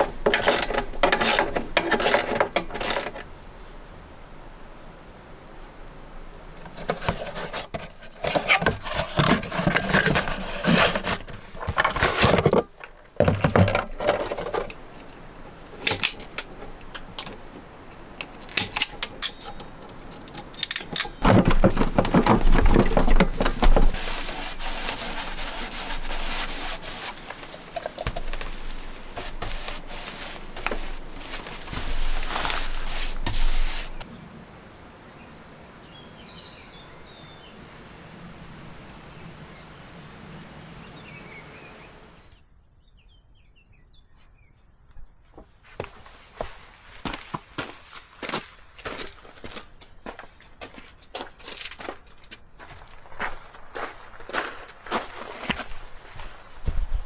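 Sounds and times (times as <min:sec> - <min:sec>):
scraping knocking and rustling: 0:00.0 - 0:03.3, 0:06.6 - 0:34.0.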